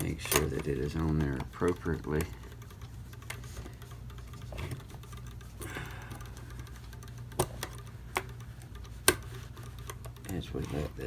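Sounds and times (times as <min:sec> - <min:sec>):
low steady hum: 0:00.0 - 0:11.0
small metallic clicks and taps: 0:00.0 - 0:11.0.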